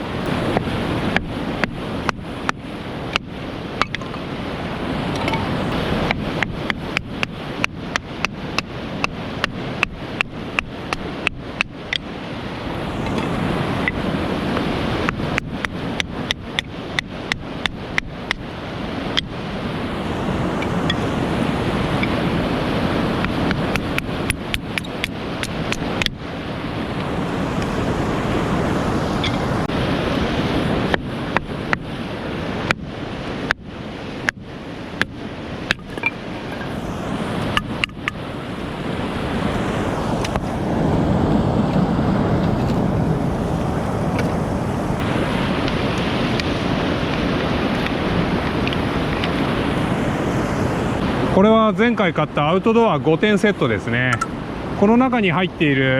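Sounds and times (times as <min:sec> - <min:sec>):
steady rushing noise: 0:00.0 - 0:55.9
low rushing noise: 0:35.6 - 0:55.9.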